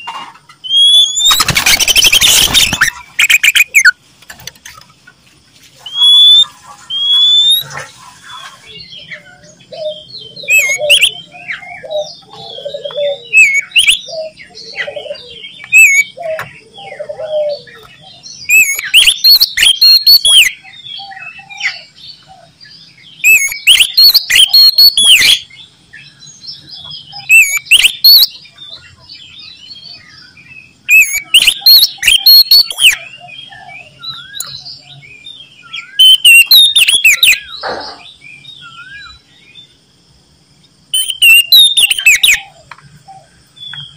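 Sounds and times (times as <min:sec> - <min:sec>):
bird singing whistles and chirps: 0:00.0 - 0:04.0, 0:05.8 - 0:39.6, 0:40.9 - 0:43.9
lower bird calls: 0:00.0 - 0:04.0, 0:05.7 - 0:39.7, 0:40.9 - 0:43.9
quiet bird warbling: 0:05.8 - 0:17.8.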